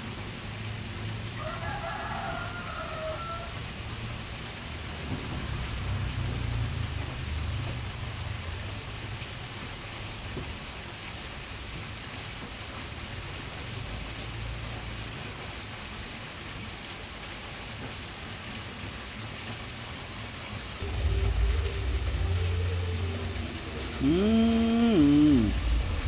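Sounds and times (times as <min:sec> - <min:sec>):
steady hiss of water: 0:00.0 - 0:26.0
low rumbling: 0:20.8 - 0:26.0.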